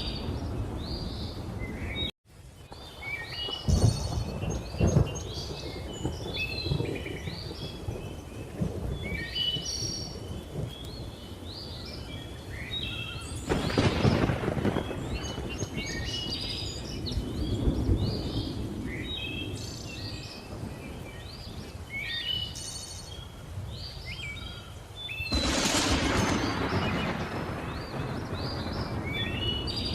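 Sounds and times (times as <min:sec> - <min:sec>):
thunder rumbling: 0:00.0 - 0:02.1, 0:02.7 - 0:12.2, 0:13.0 - 0:21.8, 0:25.3 - 0:29.9
rain hissing: 0:00.0 - 0:29.9
thunder clap: 0:02.7 - 0:11.0, 0:13.4 - 0:19.6, 0:25.3 - 0:29.9
birds chirping and whistling: 0:02.8 - 0:14.2, 0:14.8 - 0:29.9.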